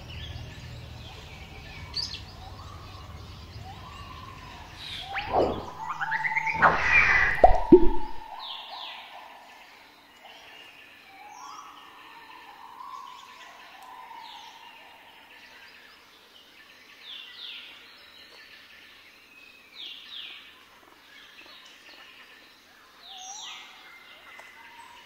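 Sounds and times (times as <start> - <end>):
drawn-out bird whistle: 2.4 - 8.6
sharp falling bird chirps: 4.9 - 8.6.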